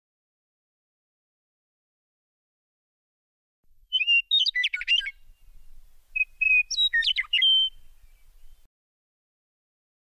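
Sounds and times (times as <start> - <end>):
bird song chirps and whistles: 3.9 - 8.7.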